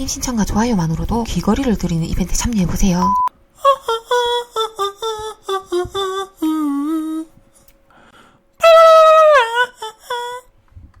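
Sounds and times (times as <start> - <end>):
person humming a tune: 3.6 - 7.7, 8.6 - 10.5.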